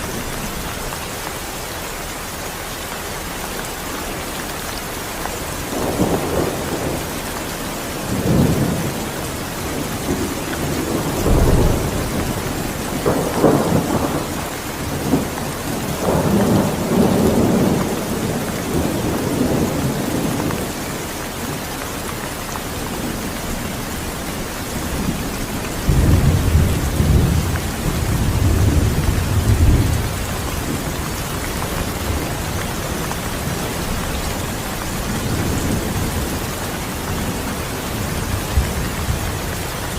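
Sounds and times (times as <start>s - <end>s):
heavy rain falling: 0.0s - 39.9s
thunder rolling: 8.0s - 20.6s, 24.3s - 39.6s.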